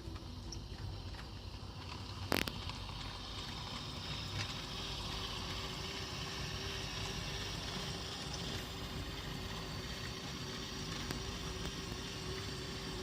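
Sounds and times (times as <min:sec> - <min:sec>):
model train rolling rumble: 0:00.0 - 0:13.0.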